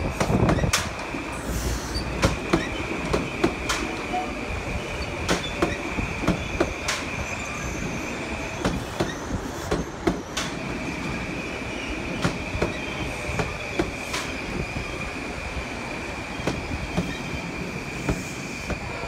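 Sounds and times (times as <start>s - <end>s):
wheels clacking over rail joints: 1.9s - 7.3s
electric train passing: 10.4s - 19.0s.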